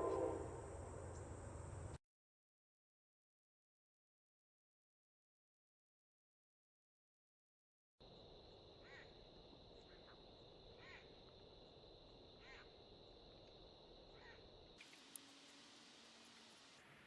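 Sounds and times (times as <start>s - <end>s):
steady high-pitched tone: 0.0s - 0.9s
faint bird call: 0.0s - 1.2s, 8.8s - 9.2s
low outdoor hum: 0.0s - 2.0s, 8.0s - 17.0s.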